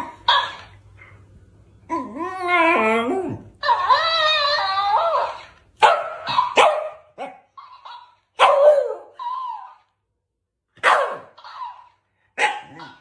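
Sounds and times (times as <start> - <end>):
small dog barking: 5.8 - 9.7, 10.8 - 11.8, 12.4 - 13.0.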